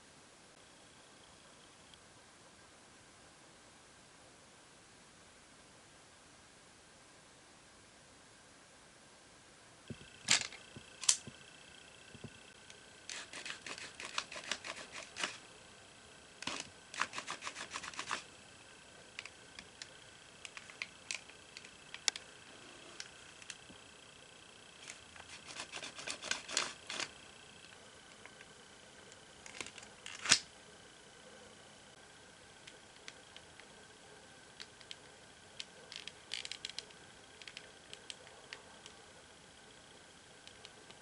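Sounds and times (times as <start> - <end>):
multitool metal clicks and snaps: 10.2 - 11.3, 29.4 - 30.5.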